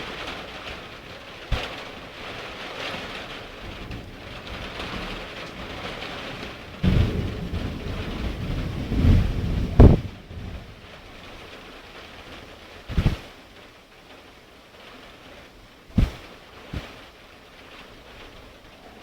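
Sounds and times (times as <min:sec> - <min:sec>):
thunder rumbling: 0:00.0 - 0:13.4
steady rain hissing: 0:00.0 - 0:19.0
sharp thunder crack: 0:03.7 - 0:11.0, 0:12.9 - 0:13.3.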